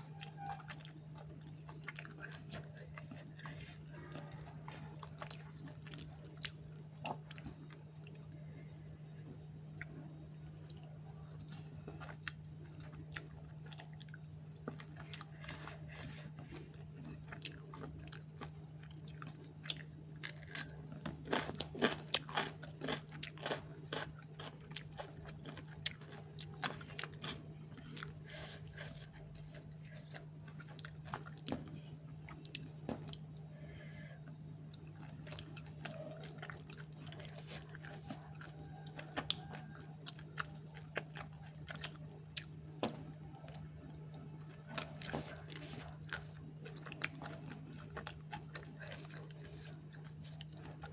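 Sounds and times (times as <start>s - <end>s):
person chewing and crunching: 0.0s - 8.5s, 9.7s - 50.9s.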